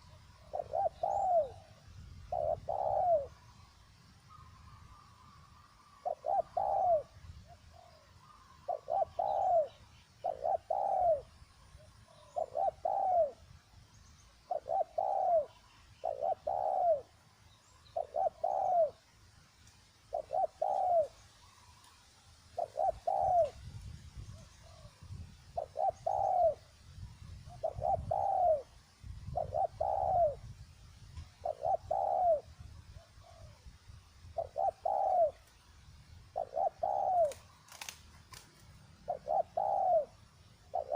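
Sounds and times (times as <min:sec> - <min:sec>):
dove cooing: 0:00.0 - 0:03.7, 0:04.3 - 0:13.5, 0:14.4 - 0:17.2, 0:17.9 - 0:19.1, 0:20.1 - 0:21.8, 0:22.6 - 0:23.6, 0:24.2 - 0:26.7, 0:27.5 - 0:30.5, 0:31.4 - 0:33.6, 0:34.3 - 0:35.5, 0:36.3 - 0:37.9, 0:39.0 - 0:40.9.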